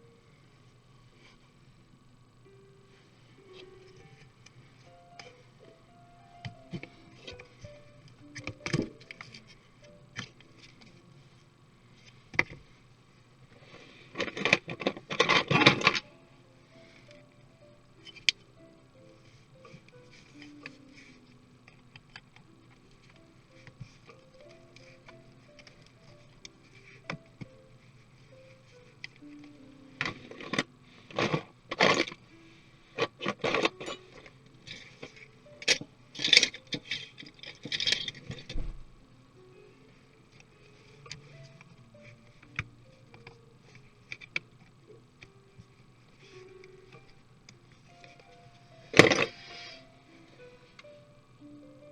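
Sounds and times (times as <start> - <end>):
plastic parts clicking and scraping: 13.7 - 16.1, 29.0 - 32.2, 33.0 - 38.6, 48.9 - 49.6.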